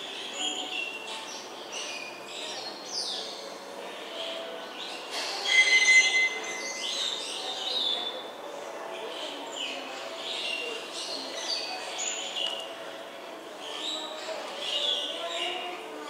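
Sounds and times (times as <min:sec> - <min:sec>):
many birds chirping: 0:00.0 - 0:16.0
shrill bird squeals: 0:05.4 - 0:07.0.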